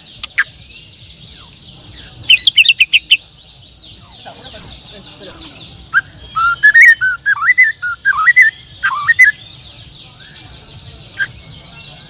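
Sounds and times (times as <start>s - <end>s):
songbirds chirping: 0.0s - 12.0s
songbird whistling loud phrases: 4.0s - 9.4s.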